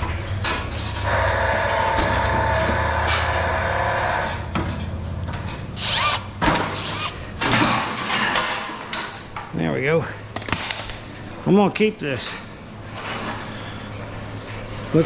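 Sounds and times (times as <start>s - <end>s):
metal parts knocking and clanking: 0.0s - 9.4s
power drill running: 1.0s - 4.4s.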